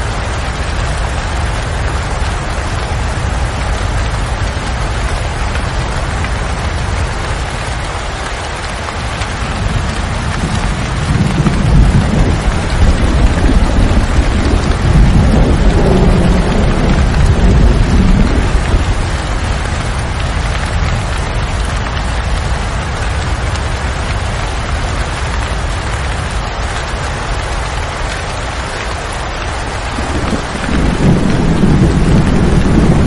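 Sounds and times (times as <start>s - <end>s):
steady rain falling: 0.0s - 33.0s
low rumble of thunder: 9.0s - 21.7s, 29.6s - 33.0s.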